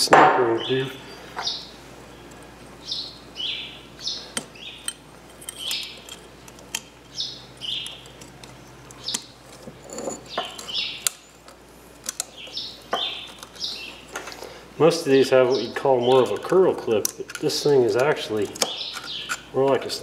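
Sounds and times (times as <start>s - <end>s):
small bird chirping: 0.6s - 4.9s, 5.5s - 6.2s, 7.1s - 9.4s, 10.2s - 11.2s, 12.2s - 14.1s, 18.6s - 19.5s
metal parts clicking: 4.3s - 14.2s, 16.1s - 19.5s.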